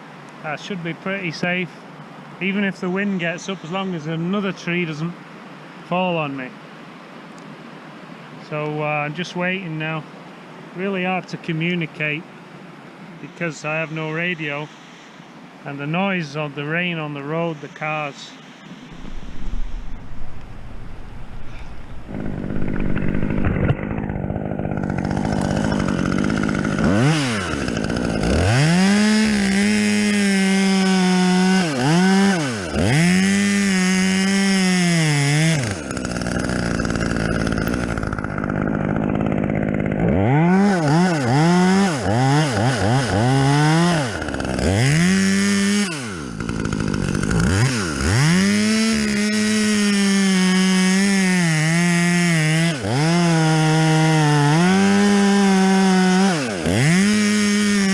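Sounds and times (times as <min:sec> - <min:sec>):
chainsaw cutting wood: 0:18.9 - 0:57.9.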